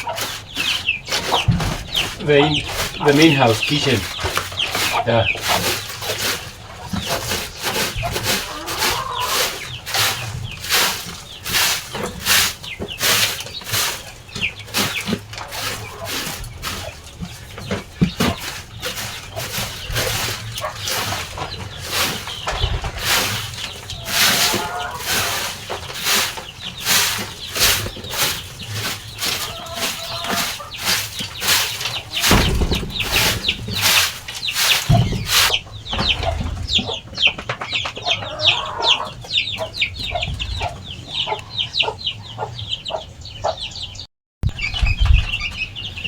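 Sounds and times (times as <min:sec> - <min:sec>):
broom sweeping floor: 0:00.0 - 0:35.6
rhythmic brushing strokes: 0:00.0 - 0:35.6
chicks peeping: 0:00.0 - 0:46.0
heavy low scrape: 0:31.4 - 0:35.5.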